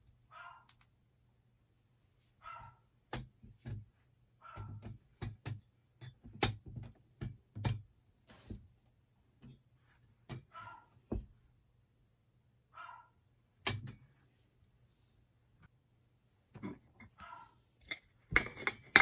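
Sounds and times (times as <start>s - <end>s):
small dog whining: 17.2s - 17.6s
metal clicks and knocks: 17.8s - 19.0s.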